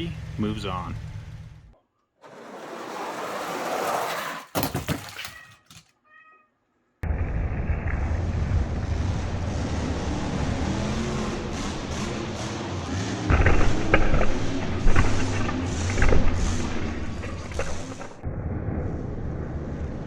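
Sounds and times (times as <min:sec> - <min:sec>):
toy trucks rolling down plastic track: 0:02.2 - 0:05.7
toy trucks clattering and crashing: 0:02.2 - 0:06.0.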